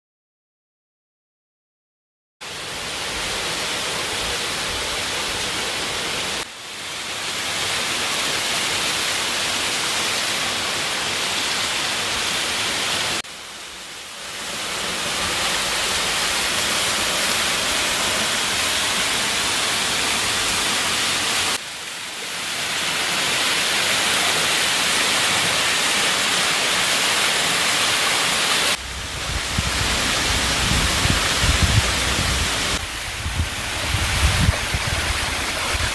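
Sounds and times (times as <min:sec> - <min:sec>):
waterfall rushing: 0:02.4 - 0:35.9
deep uneven rumble: 0:28.8 - 0:35.9.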